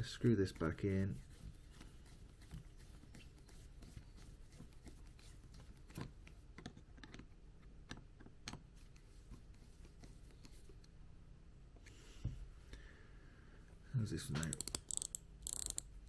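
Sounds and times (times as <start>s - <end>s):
small metal parts clicking: 14.4s - 16.0s.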